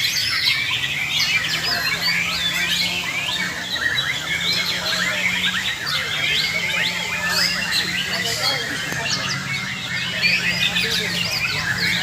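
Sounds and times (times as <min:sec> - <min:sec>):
birds singing whistled phrases: 0:00.0 - 0:12.0.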